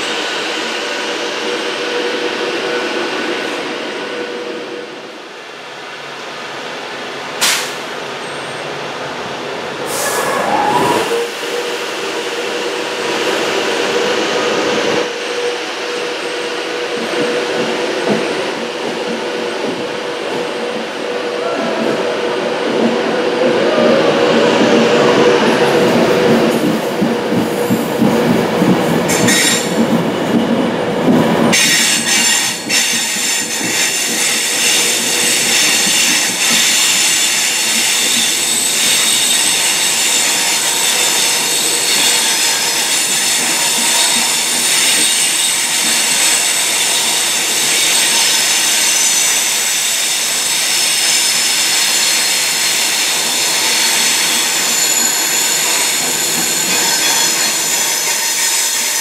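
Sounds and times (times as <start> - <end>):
train running noise: 0.0 - 59.0
high-pitched wheel squeal: 9.9 - 11.3.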